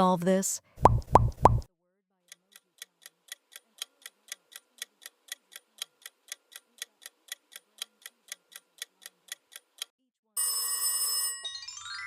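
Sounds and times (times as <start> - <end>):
clock ticking: 0.8 - 1.7, 2.3 - 9.9.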